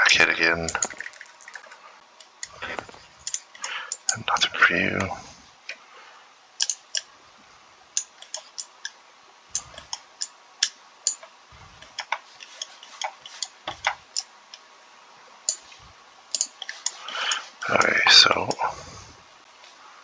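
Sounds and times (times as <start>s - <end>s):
sharp clicks and light taps: 0.7s - 4.2s, 6.6s - 7.1s, 8.0s - 14.6s, 15.5s - 17.5s.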